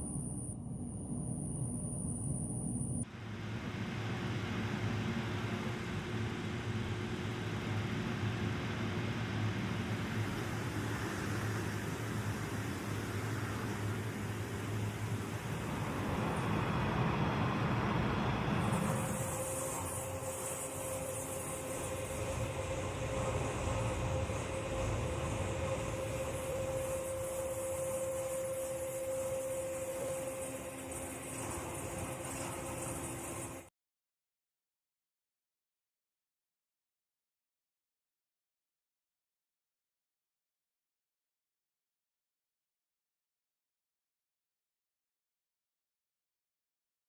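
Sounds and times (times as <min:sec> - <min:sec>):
low mechanical hum: 0:00.0 - 0:33.7
noisy hiss: 0:03.0 - 0:33.7.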